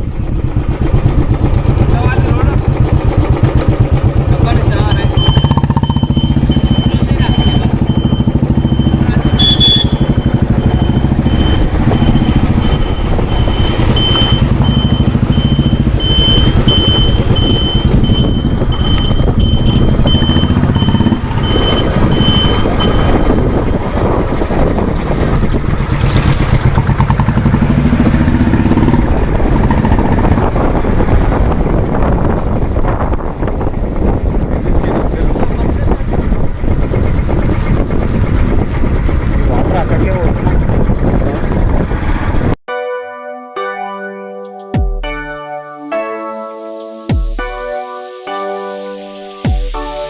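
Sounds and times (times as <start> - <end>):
motorcycle engine running: 0.0 - 42.6
short high-pitched beeps: 4.8 - 23.3
wind rush on microphone: 10.7 - 42.6.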